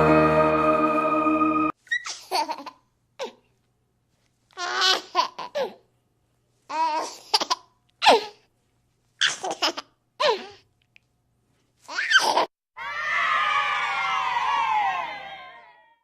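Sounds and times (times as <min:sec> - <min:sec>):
young child laughing: 0:01.9 - 0:03.3.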